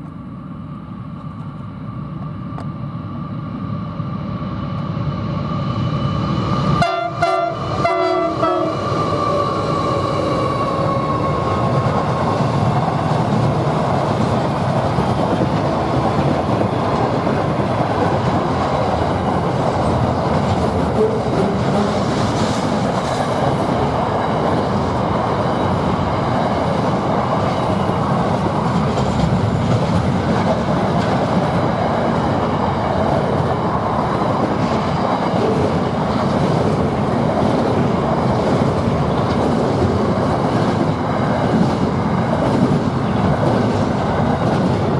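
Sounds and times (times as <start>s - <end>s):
train wheels rumbling on rail: 0.0s - 44.9s
train horn: 6.8s - 8.8s.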